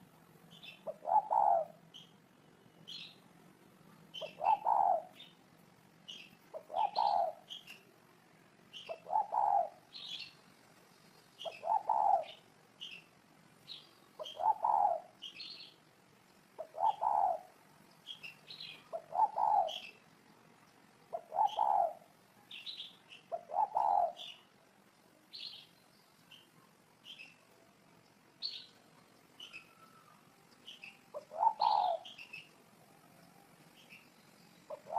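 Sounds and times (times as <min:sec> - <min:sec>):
small birds chirping: 0:00.0 - 0:34.9
dove cooing: 0:00.6 - 0:01.8, 0:04.2 - 0:05.3, 0:06.5 - 0:07.6, 0:08.8 - 0:09.9, 0:11.4 - 0:12.4, 0:14.2 - 0:15.2, 0:16.6 - 0:17.6, 0:18.7 - 0:20.0, 0:21.1 - 0:22.1, 0:23.3 - 0:24.4, 0:29.4 - 0:33.0, 0:34.7 - 0:34.9.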